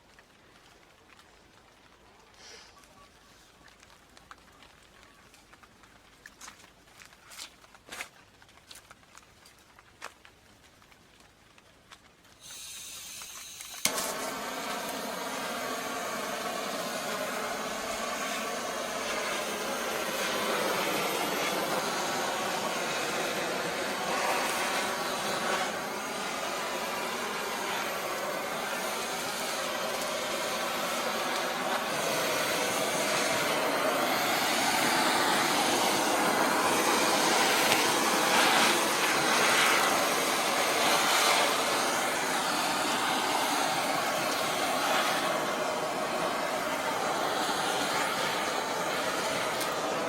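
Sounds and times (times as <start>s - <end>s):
torch lighting click: 12.4s - 22.6s, 24.1s - 33.4s, 36.6s - 38.9s
flame rushing: 12.4s - 50.0s
gas hissing from torch: 12.4s - 50.0s.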